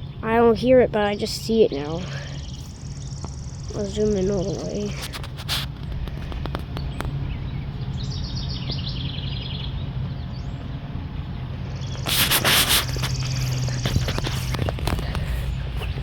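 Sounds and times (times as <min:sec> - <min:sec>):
steady low hum: 0:00.0 - 0:16.0
bird chirping: 0:02.0 - 0:04.8, 0:05.8 - 0:16.0
burst of rushing noise: 0:11.8 - 0:14.6.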